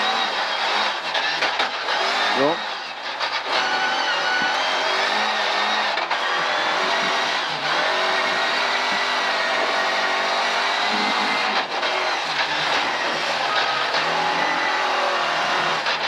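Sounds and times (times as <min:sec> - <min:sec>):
rally car engine from cabin: 0:02.2 - 0:07.9.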